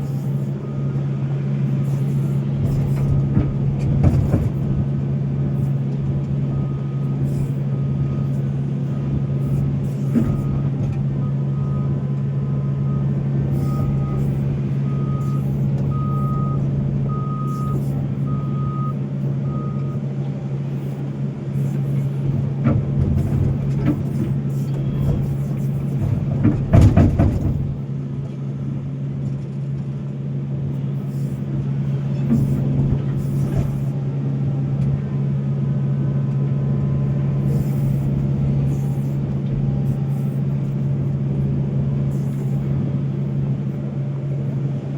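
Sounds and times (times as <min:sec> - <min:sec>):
reversing alarm beeping: 0:00.0 - 0:02.4, 0:06.4 - 0:09.2, 0:10.0 - 0:20.0
heavy diesel engine running: 0:00.0 - 0:44.9.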